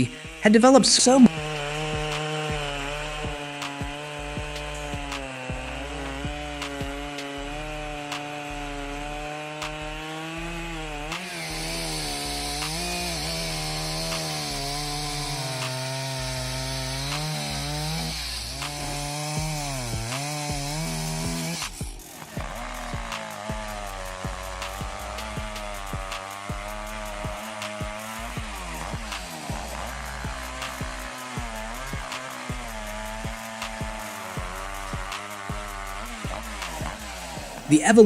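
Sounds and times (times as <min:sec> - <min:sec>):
chainsaw cutting wood: 0:00.0 - 0:38.0.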